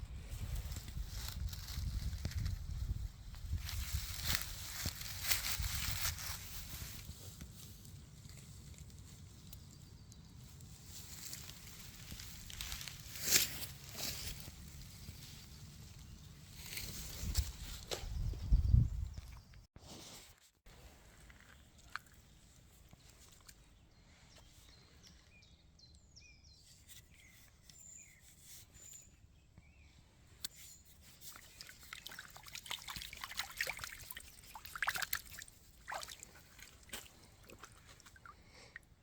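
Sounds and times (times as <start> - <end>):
rustling in dry leaf litter: 0.2 - 9.5, 10.4 - 17.8, 30.6 - 38.7.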